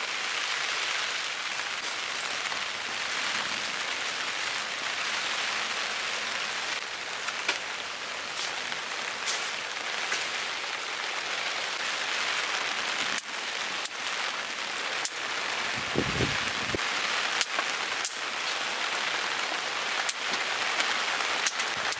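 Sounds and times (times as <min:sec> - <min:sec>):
heavy rain falling: 0:00.0 - 0:21.9
sharp drip-like clicks: 0:17.4 - 0:18.2.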